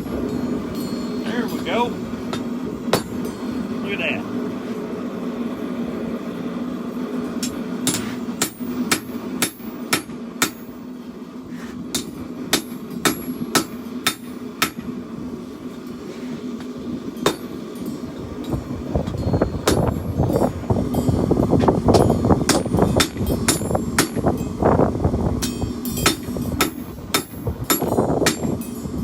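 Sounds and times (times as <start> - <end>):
steady hum: 0.0 - 29.0
hammer striking steel: 2.3 - 3.5, 7.4 - 10.7, 11.9 - 14.9, 16.6 - 20.4, 21.9 - 24.5, 25.4 - 28.8.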